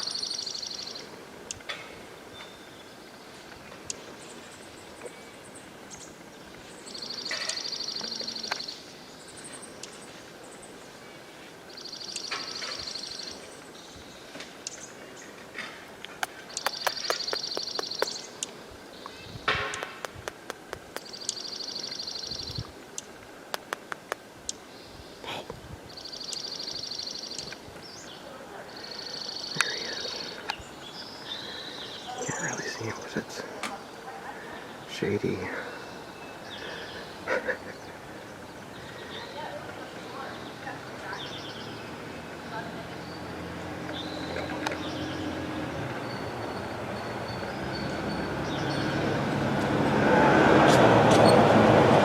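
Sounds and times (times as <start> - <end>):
songbird high trill: 0.0 - 1.6, 16.4 - 18.5
faint bird chirps: 0.0 - 10.9, 11.7 - 15.4, 16.4 - 19.8, 21.0 - 23.1, 24.5 - 49.1
songbird trills: 0.0 - 25.2, 25.8 - 49.5
outdoor background noise: 0.0 - 52.0
sharp click: 16.2 - 18.6, 19.5 - 21.4, 23.0 - 24.6.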